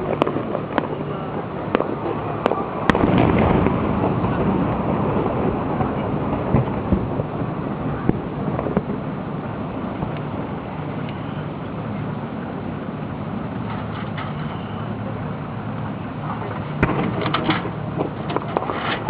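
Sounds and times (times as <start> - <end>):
small firework pops: 0.0 - 4.8, 16.8 - 19.0
fireworks bangs: 0.0 - 10.6, 16.4 - 18.9
background rumble: 0.0 - 19.0.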